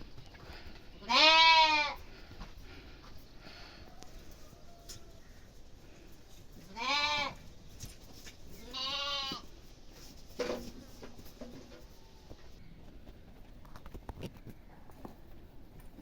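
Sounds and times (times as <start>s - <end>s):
goat bleating: 1.0s - 2.0s, 6.7s - 7.4s, 8.6s - 9.5s.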